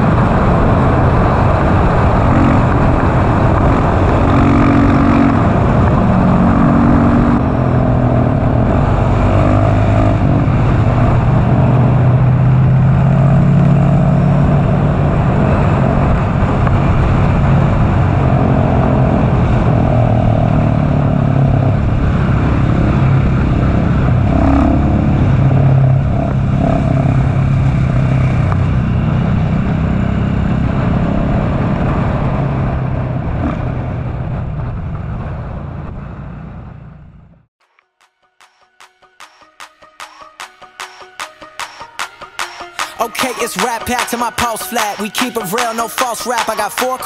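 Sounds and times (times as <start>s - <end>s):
wind rush: 0.0s - 36.8s
motorcycle engine running: 0.0s - 37.5s.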